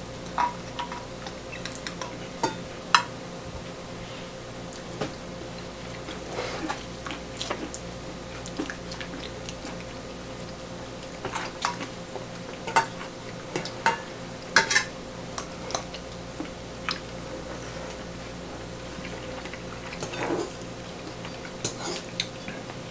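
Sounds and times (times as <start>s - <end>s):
utensils and dishes clinking: 0.2s - 3.1s, 12.6s - 16.0s, 19.9s - 20.6s, 21.2s - 22.6s.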